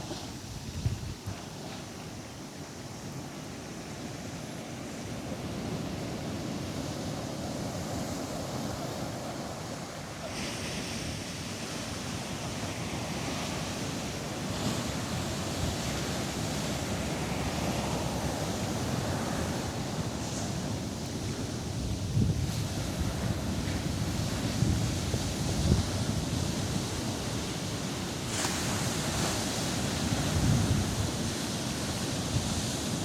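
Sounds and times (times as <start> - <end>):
wind buffeting microphone: 0.0 - 2.0, 10.4 - 33.0
ocean surf breaking: 1.2 - 33.0.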